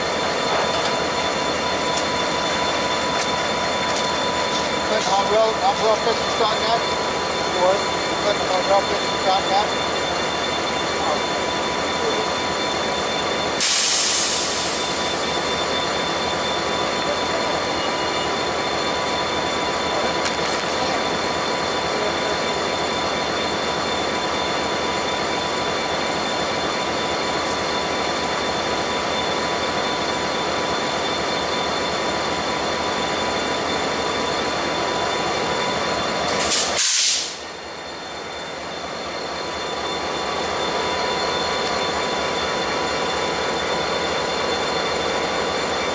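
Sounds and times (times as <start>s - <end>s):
freight train rolling: 0.0s - 45.9s
steel wheels squealing on rails: 0.0s - 45.9s
short hissing bursts: 13.6s - 14.8s, 36.5s - 37.4s.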